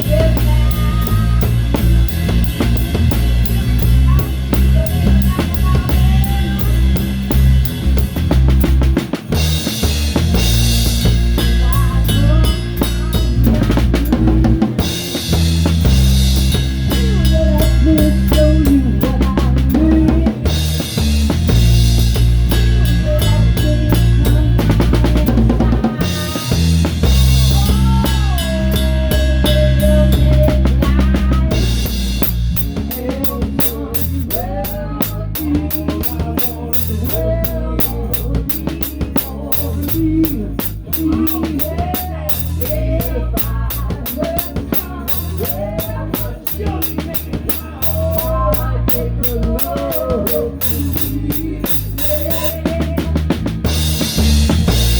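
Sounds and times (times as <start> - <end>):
cymbals: 0.0 - 54.9
damped snare drum: 0.0 - 54.9
electric bass notes: 0.0 - 54.9
live rock band playing: 0.0 - 54.9
kick drum and snare strokes: 30.2 - 54.9.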